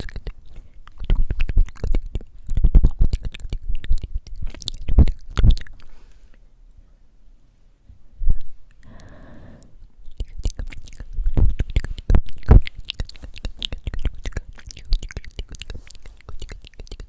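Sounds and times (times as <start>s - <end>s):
wet lip and tongue clicks: 0.0s - 6.4s, 8.4s - 17.0s
breathy hiss: 8.8s - 9.8s.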